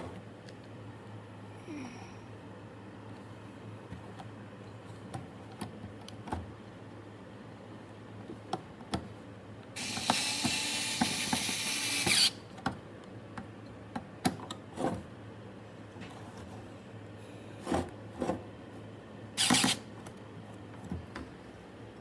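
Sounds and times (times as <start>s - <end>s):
electric screwdriver running: 9.8s - 12.4s, 19.4s - 19.8s.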